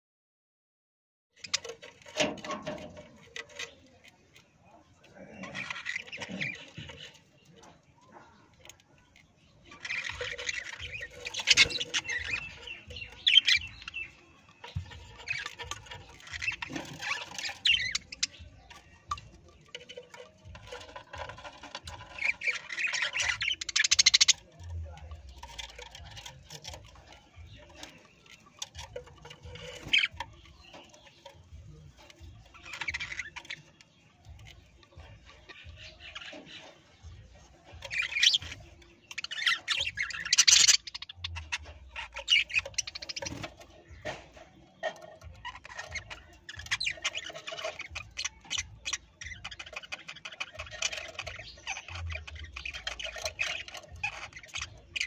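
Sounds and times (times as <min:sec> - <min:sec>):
parrot squawking and chattering: 0:04.9 - 0:55.0.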